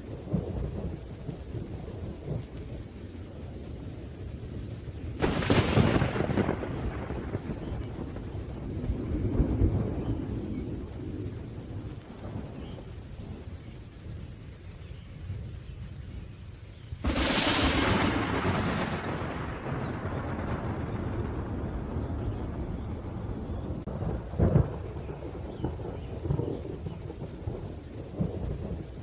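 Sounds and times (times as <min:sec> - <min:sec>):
rain: 0:00.0 - 0:29.0
thunder rumbling: 0:00.0 - 0:29.0
sharp thunderclap: 0:05.2 - 0:12.9, 0:17.0 - 0:29.0.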